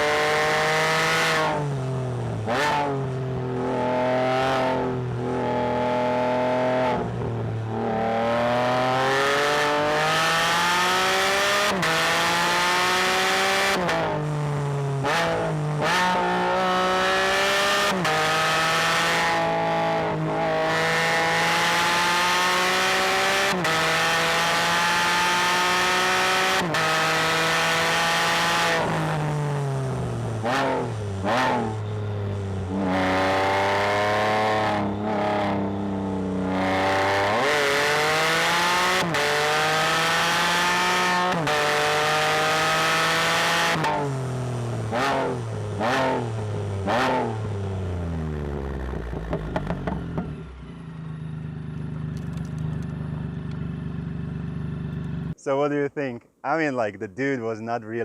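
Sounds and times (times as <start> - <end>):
motorcycle engine accelerating: 0.0 - 55.4
exhaust crackle: 48.2 - 55.4.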